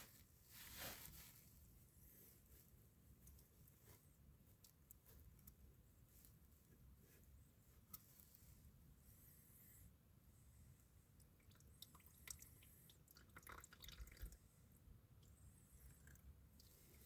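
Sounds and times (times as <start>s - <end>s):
oil dripping into container: 11.2s - 14.4s, 16.0s - 17.0s.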